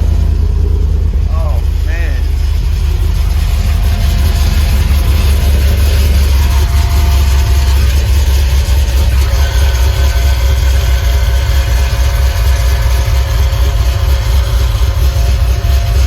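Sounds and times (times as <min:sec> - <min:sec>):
faint steady whine: 0:00.0 - 0:16.0
truck engine idling: 0:00.0 - 0:16.0.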